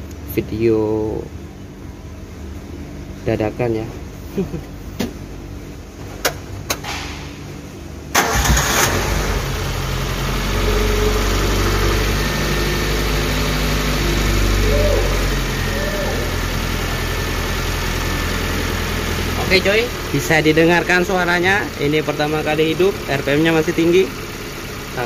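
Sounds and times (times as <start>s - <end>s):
car engine idling: 7.6s - 25.0s
engine cranking on starter: 8.1s - 9.8s.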